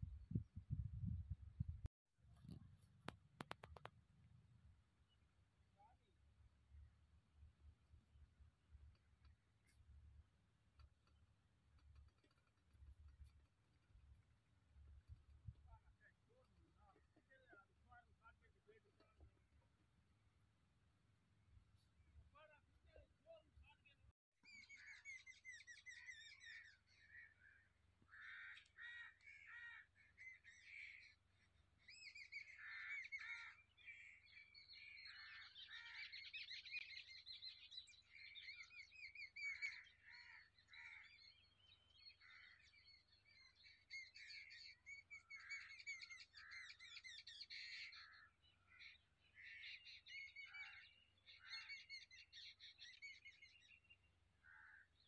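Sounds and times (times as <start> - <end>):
birds chirping: 22.4 - 55.0.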